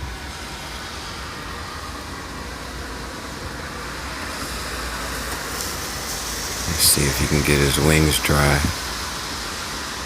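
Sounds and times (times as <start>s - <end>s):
even hiss: 5.6s - 10.0s.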